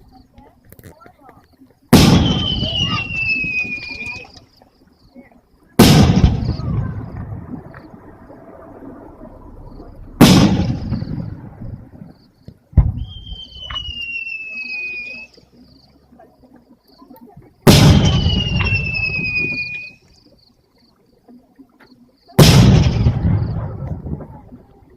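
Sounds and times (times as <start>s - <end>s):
fireworks booming: 1.9s - 4.4s, 5.8s - 14.8s, 17.6s - 20.0s, 22.4s - 24.5s
firework whistle falling: 2.0s - 4.4s, 12.9s - 15.4s, 17.8s - 20.0s.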